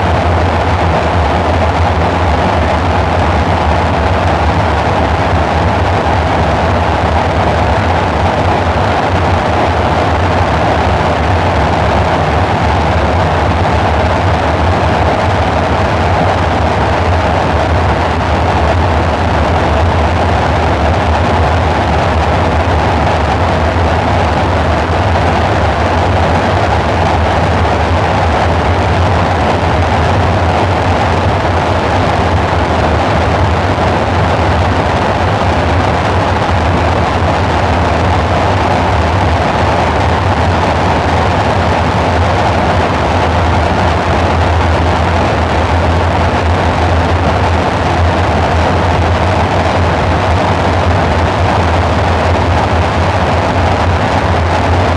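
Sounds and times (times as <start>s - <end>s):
dark synthesizer drone: 0.0s - 54.9s.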